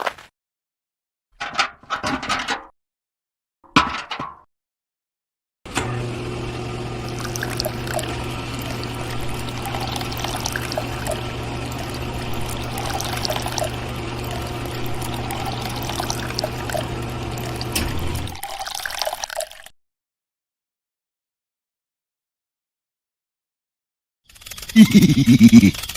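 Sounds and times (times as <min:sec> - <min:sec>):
electric water pump humming: 0:05.7 - 0:19.7
water pouring and splashing: 0:07.0 - 0:19.7.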